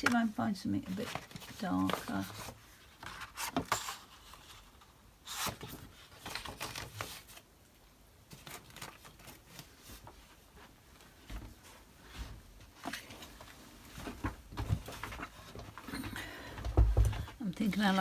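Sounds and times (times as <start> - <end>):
card stock rustling: 0.0 - 7.5, 8.3 - 10.2.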